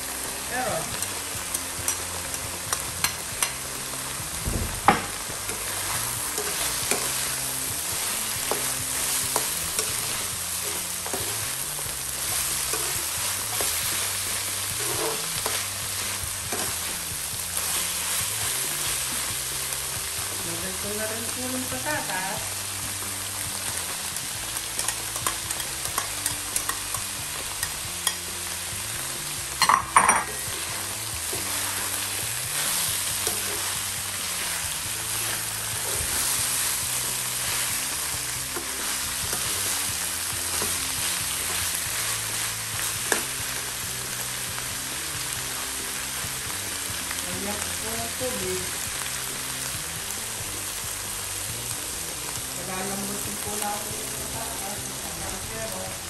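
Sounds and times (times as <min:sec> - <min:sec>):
food sizzling in a wok: 0:00.0 - 0:56.0
metal spatula stirring and scraping: 0:05.5 - 0:19.3, 0:29.6 - 0:43.3.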